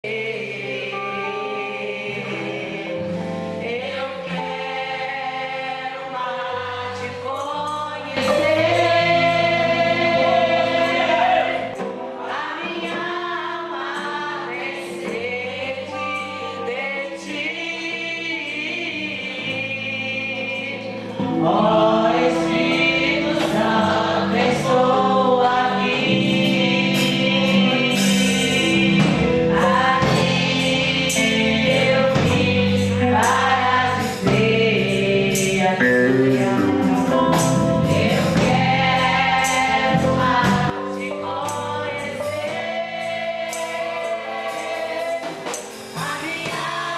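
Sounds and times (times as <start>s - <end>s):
choir singing gospel music: 0.0s - 46.9s
band playing: 8.2s - 15.7s, 20.7s - 46.9s.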